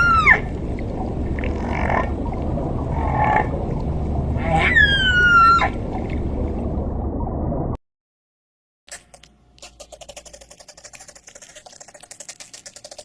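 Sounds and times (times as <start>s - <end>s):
animal cry: 0.0s - 0.5s, 4.4s - 5.7s
low rumble: 0.1s - 7.8s.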